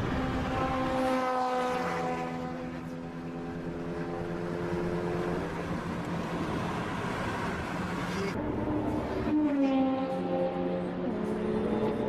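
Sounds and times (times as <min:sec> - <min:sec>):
car engine at high revs: 0:00.0 - 0:09.2
wind and road noise: 0:00.0 - 0:12.0.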